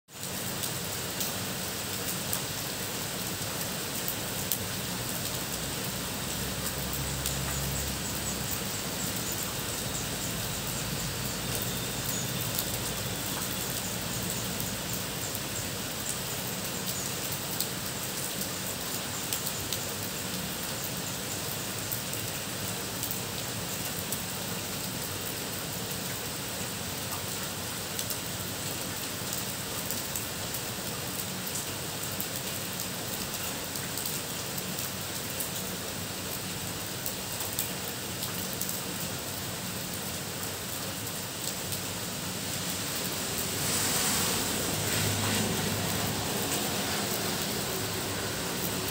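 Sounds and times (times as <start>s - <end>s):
heavy rain falling: 0.1s - 48.9s
raindrops ticking: 4.0s - 20.9s.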